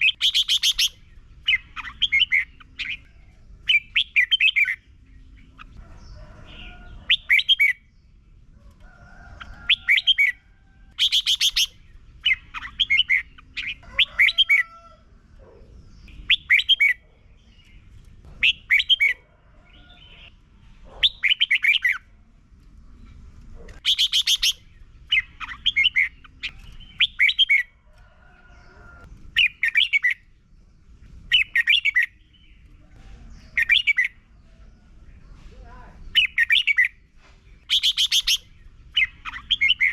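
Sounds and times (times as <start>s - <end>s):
bird whistled song phrases: 0.0s - 3.1s, 11.0s - 14.5s, 23.8s - 24.6s, 37.7s - 39.9s
faint bird calls: 0.0s - 7.8s, 8.6s - 17.8s, 23.5s - 30.3s, 37.6s - 39.9s.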